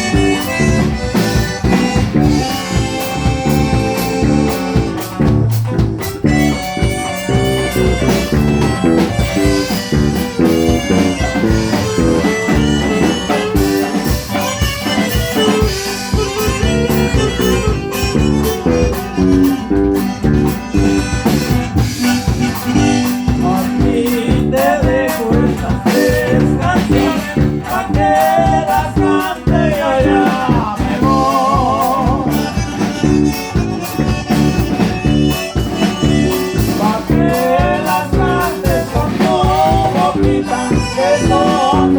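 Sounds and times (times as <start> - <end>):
button accordion melody: 0.0 - 41.9
strummed rhythm and bass: 0.0 - 41.9.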